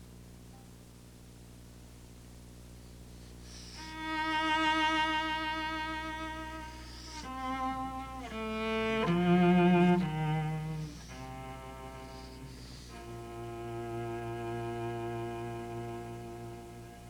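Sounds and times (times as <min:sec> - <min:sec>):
solo cello with vibrato: 0:03.5 - 0:17.0.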